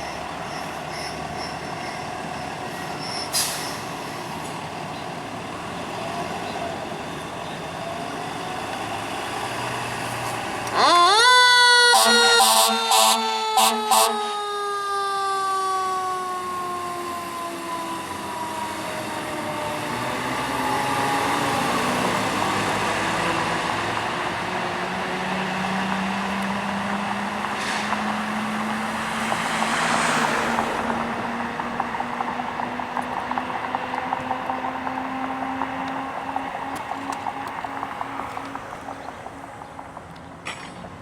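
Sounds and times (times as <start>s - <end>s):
traffic: 0.0s - 41.0s
truck rumble: 0.0s - 41.0s
siren: 10.6s - 23.9s
fire engine air horn blasts: 10.7s - 16.7s.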